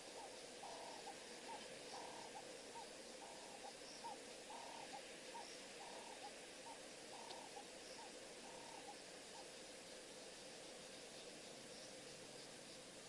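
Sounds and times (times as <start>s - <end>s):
bird calling: 0.0s - 9.6s
steady hiss: 0.0s - 13.0s.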